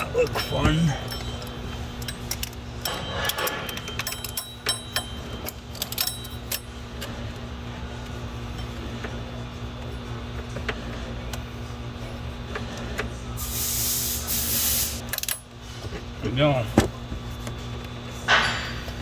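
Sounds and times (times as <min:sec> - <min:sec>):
hand tools clinking on metal: 0:00.0 - 0:06.7
steady low hum: 0:00.0 - 0:19.0.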